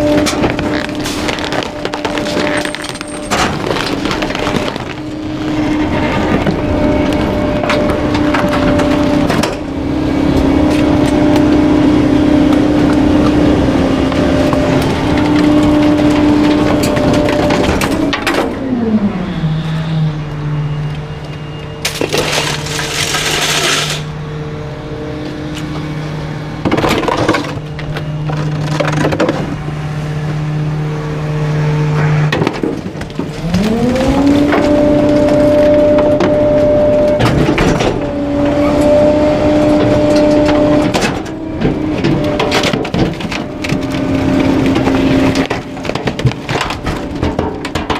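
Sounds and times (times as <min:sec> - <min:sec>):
items cracking and splintering: 0:00.0 - 0:09.7, 0:14.0 - 0:18.5, 0:21.8 - 0:24.0, 0:26.6 - 0:29.7, 0:32.3 - 0:47.9
garbage truck engine revving: 0:00.0 - 0:47.9.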